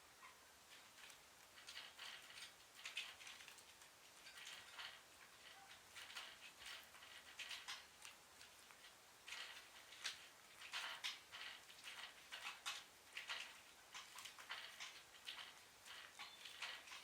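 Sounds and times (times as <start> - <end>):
birds making scratchy sounds: 0.2 - 17.0.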